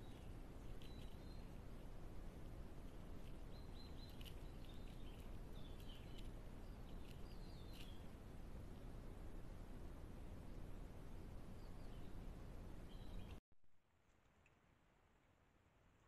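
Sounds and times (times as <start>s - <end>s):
faint bird chirps: 0.0s - 1.9s, 2.8s - 8.9s, 10.6s - 13.4s.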